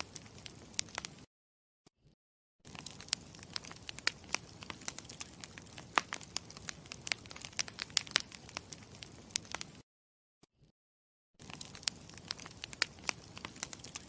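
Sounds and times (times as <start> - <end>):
campfire crackling: 0.0 - 1.3, 2.7 - 9.8, 11.4 - 14.0.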